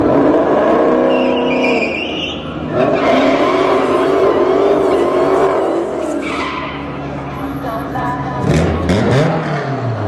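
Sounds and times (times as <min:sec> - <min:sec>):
car engine at high revs: 0:00.0 - 0:01.9, 0:02.5 - 0:07.4, 0:08.2 - 0:10.0
tyre squeal: 0:01.0 - 0:07.0.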